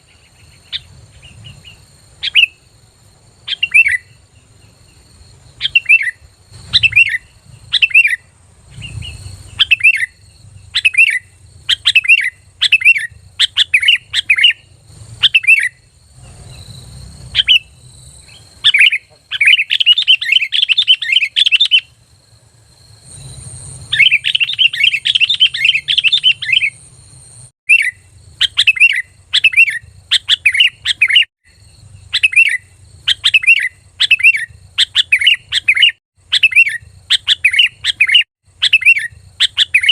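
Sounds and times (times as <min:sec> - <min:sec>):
bird whistling song: 0:00.0 - 0:02.7, 0:03.4 - 0:22.0, 0:23.1 - 0:26.9, 0:27.7 - 0:39.9
bird chattering: 0:03.5 - 0:04.2, 0:05.6 - 0:21.9, 0:23.9 - 0:26.8, 0:27.7 - 0:31.3, 0:32.0 - 0:39.9.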